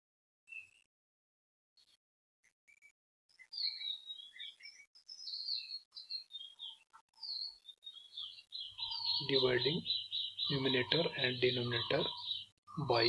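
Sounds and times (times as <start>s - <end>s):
small birds chirping: 2.7s - 13.0s.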